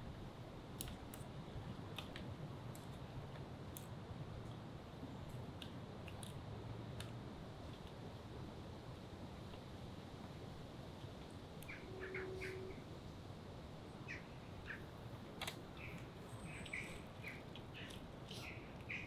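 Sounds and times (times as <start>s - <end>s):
small birds chirping: 11.6s - 12.8s, 13.9s - 14.9s, 15.7s - 19.0s.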